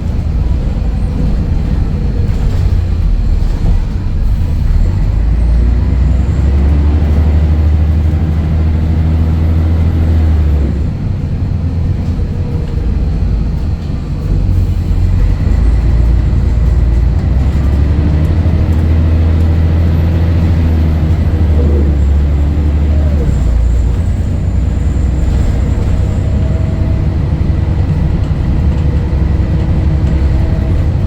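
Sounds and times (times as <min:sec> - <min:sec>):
bus diesel engine pulling: 0:00.0 - 0:31.0.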